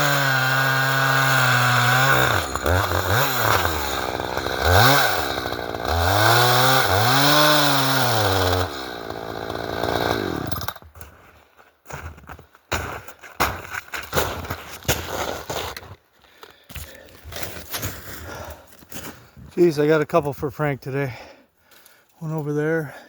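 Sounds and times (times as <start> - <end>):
chainsaw revving: 0.0 - 10.8.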